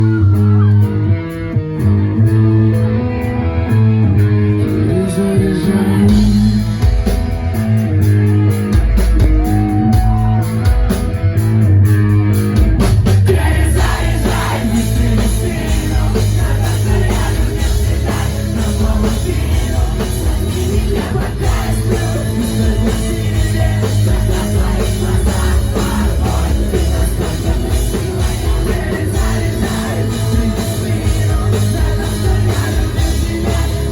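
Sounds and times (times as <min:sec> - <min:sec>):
rock band playing: 0:00.0 - 0:33.9.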